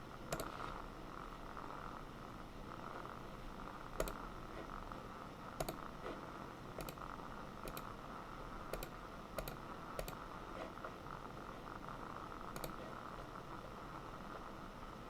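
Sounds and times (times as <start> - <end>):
keyboard clicks: 0.3 - 0.6, 4.0 - 4.2, 5.6 - 5.8, 6.8 - 7.0, 7.6 - 7.9, 8.7 - 10.2, 12.5 - 12.9.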